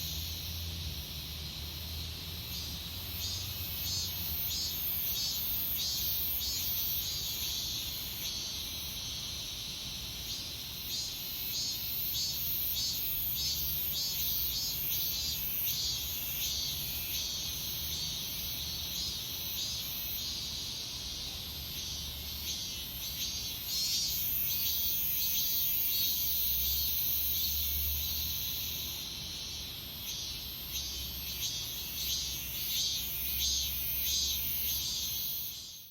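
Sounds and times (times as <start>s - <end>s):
cicadas buzzing in pulses: 0.0s - 35.9s
high unbroken cicada buzz: 0.0s - 35.9s.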